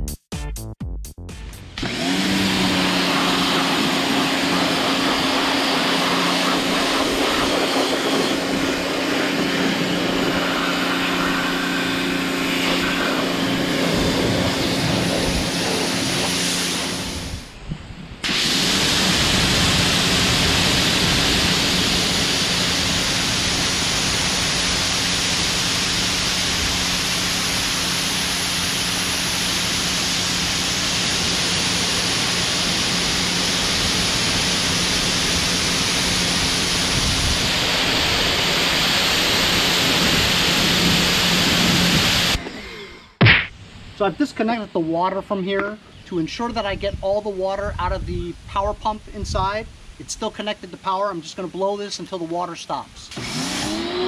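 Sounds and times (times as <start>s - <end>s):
pressure washer motor hum: 1.6s - 17.6s, 18.2s - 43.2s, 53.1s - 54.0s
high-pressure water spray hiss: 2.0s - 17.5s, 18.2s - 42.4s.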